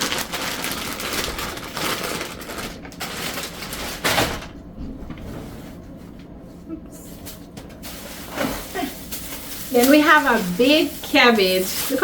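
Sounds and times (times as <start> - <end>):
plastic packaging crinkling: 0.0 - 4.6, 7.3 - 12.0.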